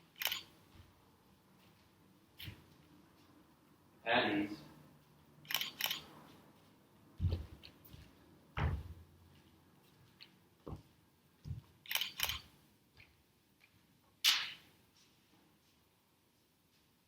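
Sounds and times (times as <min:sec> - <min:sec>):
sharp clicks: 0:05.5 - 0:06.0, 0:11.9 - 0:12.4.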